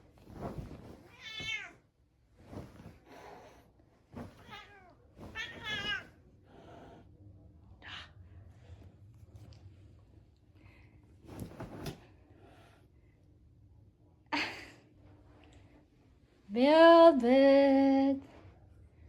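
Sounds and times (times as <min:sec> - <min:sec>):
cat meowing: 0:01.1 - 0:01.8, 0:04.4 - 0:06.1.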